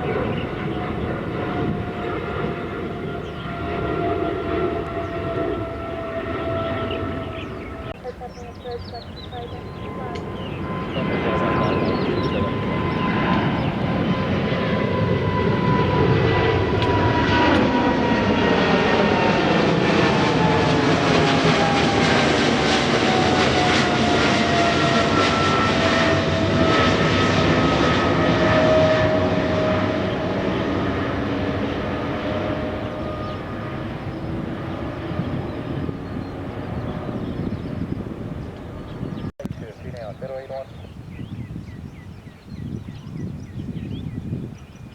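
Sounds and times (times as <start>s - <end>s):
airliner engines taking off: 0.0s - 44.9s.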